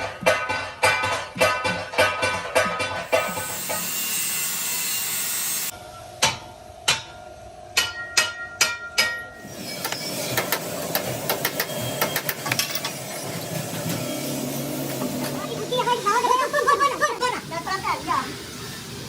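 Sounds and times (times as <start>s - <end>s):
grinding hiss: 3.1s - 5.7s, 9.4s - 19.0s.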